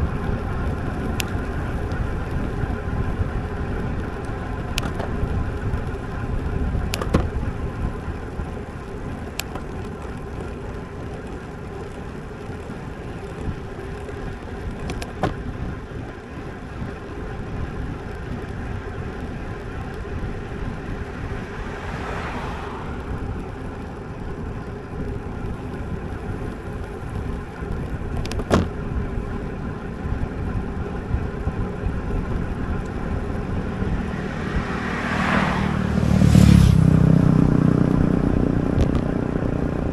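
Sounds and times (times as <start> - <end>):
bike tyre hum: 0.0 - 39.9
knocks from road bumps: 15.0 - 15.4, 28.4 - 28.8
wind rush: 20.8 - 23.7, 33.0 - 39.1.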